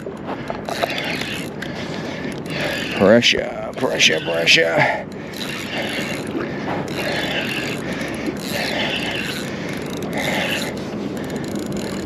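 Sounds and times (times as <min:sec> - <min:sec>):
fishing reel winding grind: 0:00.0 - 0:12.0.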